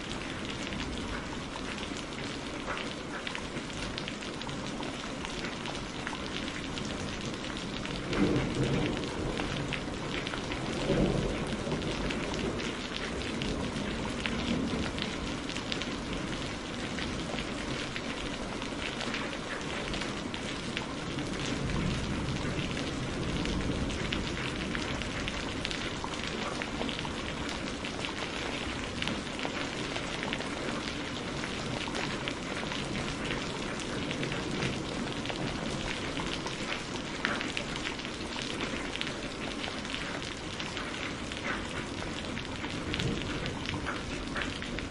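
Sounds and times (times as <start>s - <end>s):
heavy rain crackling: 0.0s - 44.9s
thunder rumbles: 6.6s - 18.3s, 20.1s - 39.0s, 41.2s - 44.9s.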